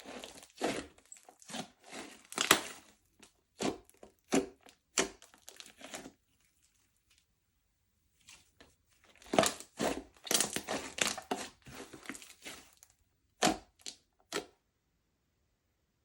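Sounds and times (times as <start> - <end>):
slime crackling and snapping: 1.5 - 2.9, 9.2 - 12.8.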